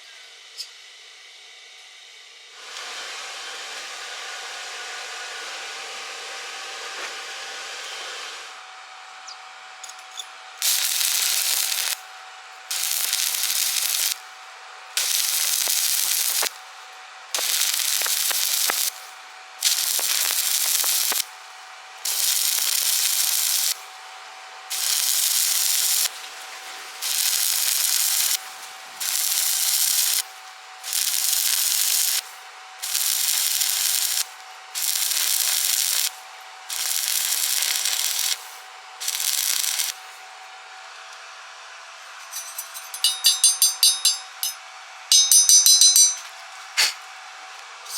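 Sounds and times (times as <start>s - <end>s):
welding arc crackling: 10.6s - 24.0s, 24.7s - 40.3s.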